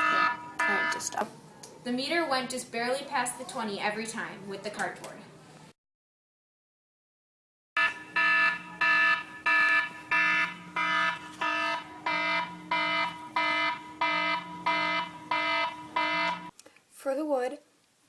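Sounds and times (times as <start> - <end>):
electronic alarm beeping: 0.0 - 1.2, 7.8 - 16.5.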